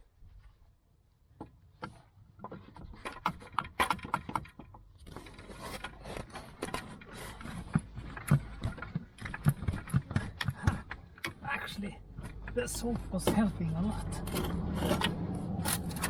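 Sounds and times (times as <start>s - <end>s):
metal scraping: 12.2s - 16.0s.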